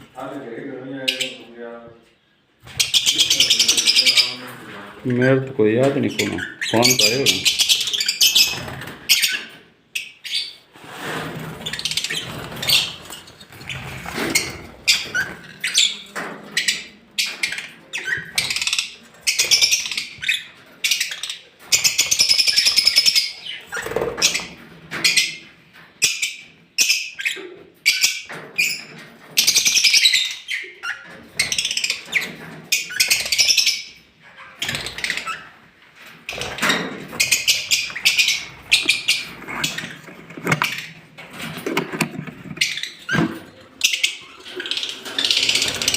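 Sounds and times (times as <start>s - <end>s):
lovebirds chirping: 2.7s - 10.6s, 36.3s - 41.0s.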